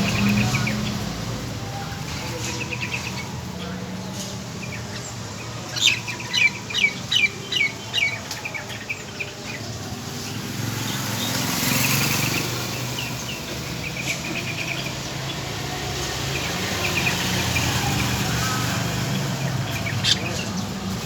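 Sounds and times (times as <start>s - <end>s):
bird chirping: 2.1s - 21.0s
bird chattering: 18.5s - 21.0s.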